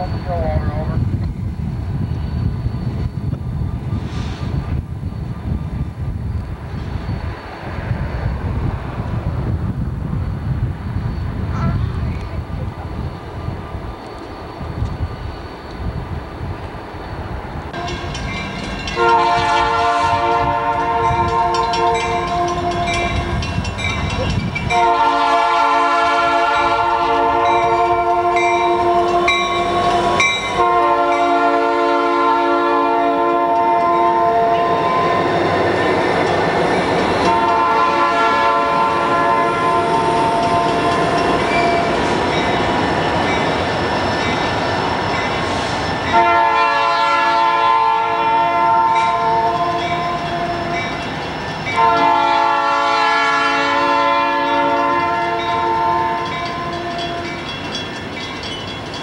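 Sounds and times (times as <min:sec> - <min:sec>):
train wheels rumbling on rails: 0:00.0 - 0:59.0
train air horn blasts: 0:18.9 - 0:23.5, 0:24.7 - 0:35.3, 0:37.2 - 0:41.9, 0:46.1 - 0:50.9, 0:51.8 - 0:57.4.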